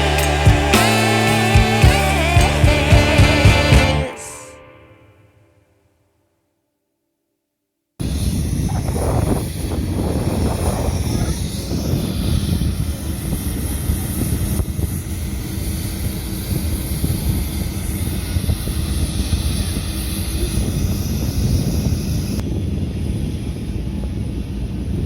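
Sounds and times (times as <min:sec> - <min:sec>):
heavy engines rumbling: 0:00.0 - 0:04.6.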